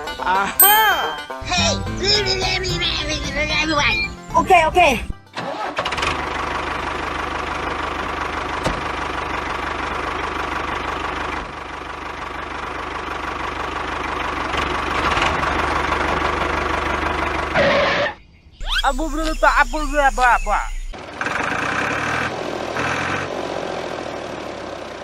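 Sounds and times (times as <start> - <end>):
tractor engine idling: 0.0 - 17.6.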